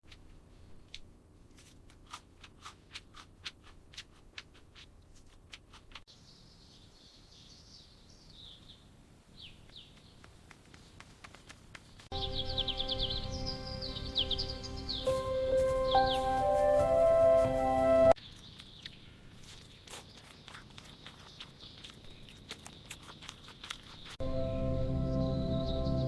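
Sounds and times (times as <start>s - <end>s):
birds chirping: 12.1s - 26.0s.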